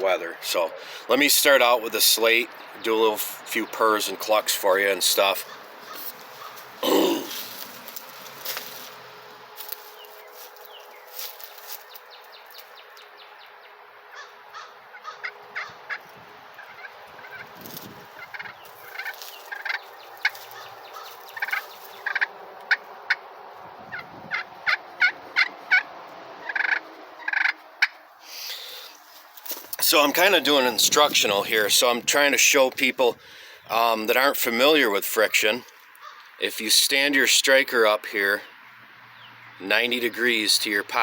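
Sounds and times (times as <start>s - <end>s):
turkey call clucks: 5.4s - 6.7s, 14.1s - 23.2s, 23.9s - 29.0s, 36.0s - 36.3s
turkey call purring rasp: 23.9s - 29.0s.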